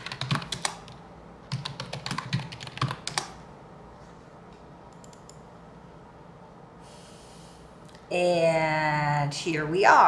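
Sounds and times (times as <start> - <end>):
computer keyboard typing: 0.0 - 3.4.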